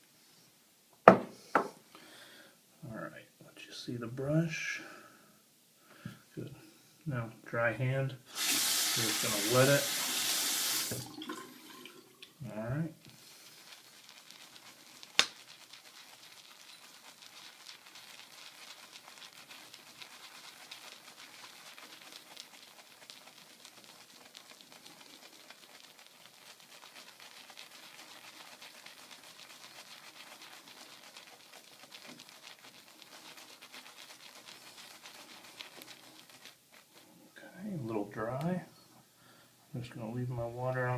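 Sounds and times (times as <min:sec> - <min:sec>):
shaving brush squishing lather: 0:08.3 - 0:38.6.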